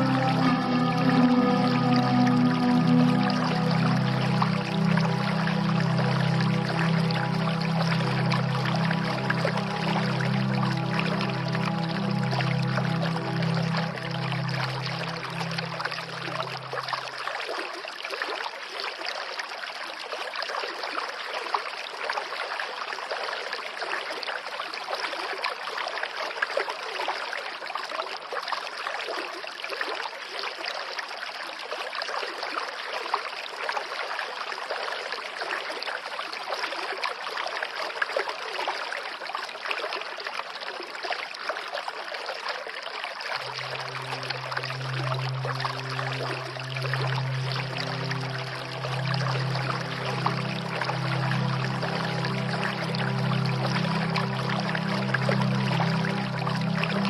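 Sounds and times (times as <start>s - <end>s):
low sustained music tone: 0.0s - 18.3s, 43.2s - 57.0s
stream water babbling: 0.0s - 57.0s.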